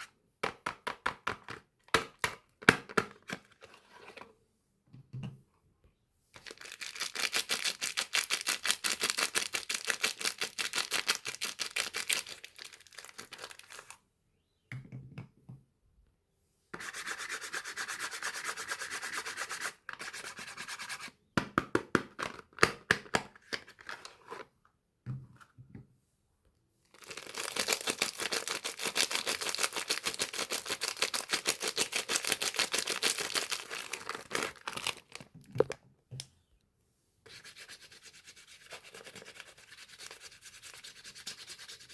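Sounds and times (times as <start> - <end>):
packaging crinkling: 27.0 - 35.8.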